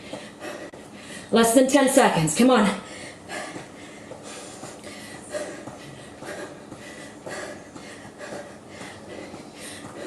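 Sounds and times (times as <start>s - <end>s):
person breathing hard: 0.0s - 1.3s, 2.8s - 10.0s.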